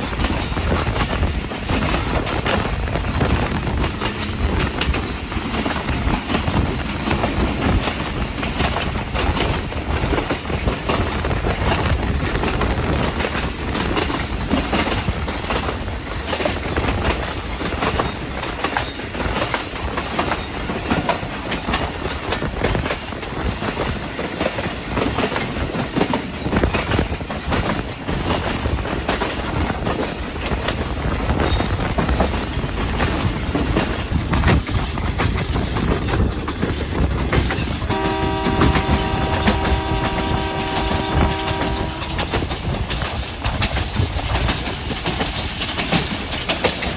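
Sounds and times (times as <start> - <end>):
train rumble: 0.0 - 46.9
train wheels clacking: 0.0 - 46.9
train horn blast: 37.9 - 42.5.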